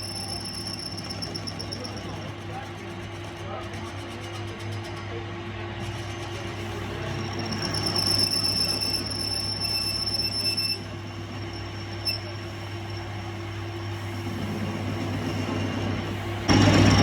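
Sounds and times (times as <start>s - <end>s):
high-pitched metallic squeal: 0.0s - 5.0s, 5.8s - 17.0s
workshop machine humming: 0.0s - 17.0s.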